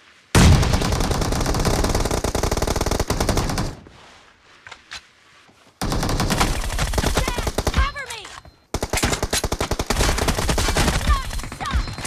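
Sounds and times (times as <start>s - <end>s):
video game automatic gunfire: 0.4s - 3.8s, 5.8s - 8.0s, 8.7s - 12.0s.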